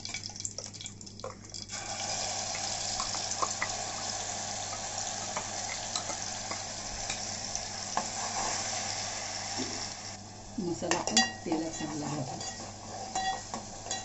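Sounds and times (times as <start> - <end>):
paste sizzling in hot oil: 1.6 - 10.2.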